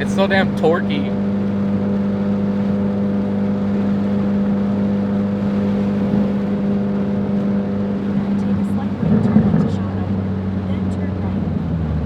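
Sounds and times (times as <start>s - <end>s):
car engine droning from inside cabin: 0.0s - 12.0s.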